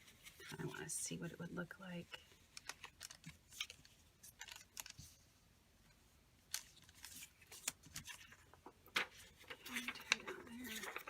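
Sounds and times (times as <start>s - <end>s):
paper rustling: 2.5s - 5.2s, 6.5s - 11.0s.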